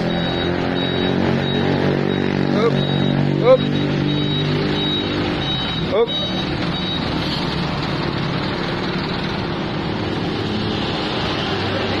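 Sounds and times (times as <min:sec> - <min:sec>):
truck engine humming: 0:00.0 - 0:12.0.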